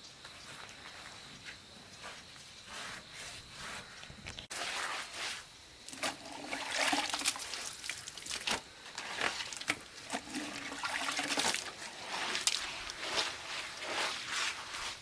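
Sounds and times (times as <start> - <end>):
water splashing and trickling: 4.5 - 14.5.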